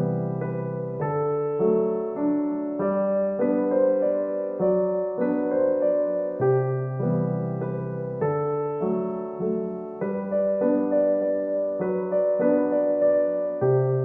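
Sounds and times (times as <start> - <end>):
soft piano music: 0.0 - 14.0.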